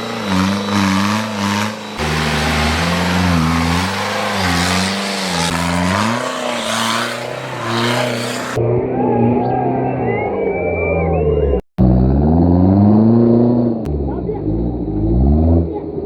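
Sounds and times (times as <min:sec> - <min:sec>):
off-road vehicle engine revving: 0:00.0 - 0:08.6, 0:11.8 - 0:16.0.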